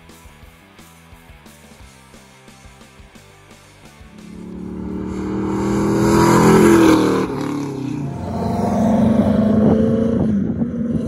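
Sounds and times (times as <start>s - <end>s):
car engine driving past: 4.1s - 10.2s.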